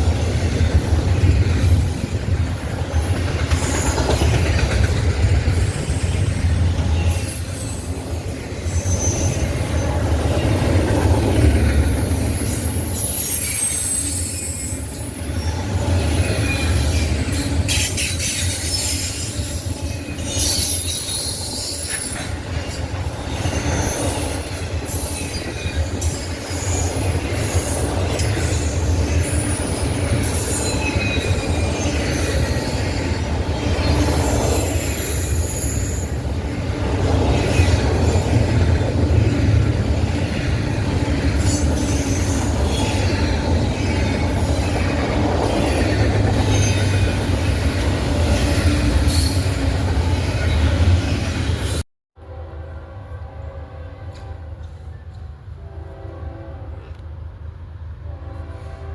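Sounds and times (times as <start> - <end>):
train wheels squealing: 0.0 - 51.8
freight train rumbling: 0.0 - 58.9
wheels clicking over rail joints: 2.7 - 7.2.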